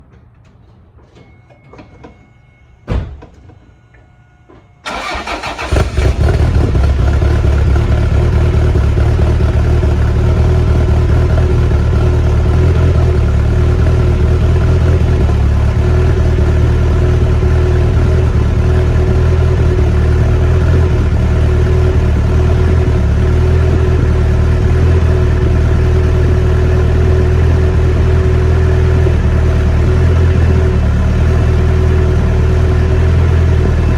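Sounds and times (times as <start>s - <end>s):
starter motor cranking: 4.9s - 6.8s
car engine running loudly: 4.9s - 33.9s.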